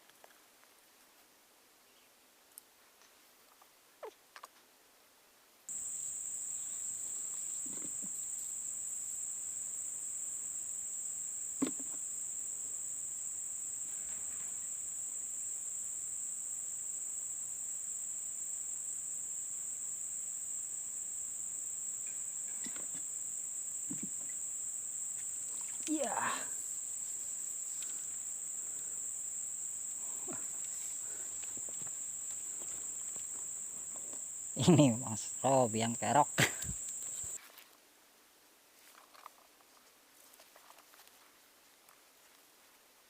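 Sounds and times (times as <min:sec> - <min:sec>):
crickets chirping: 0:05.7 - 0:37.4.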